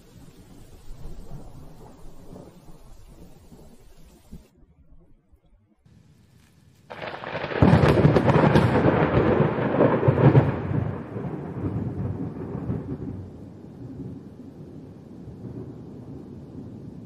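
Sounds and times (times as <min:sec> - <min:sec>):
thunder crack and rumble: 0:06.9 - 0:17.0.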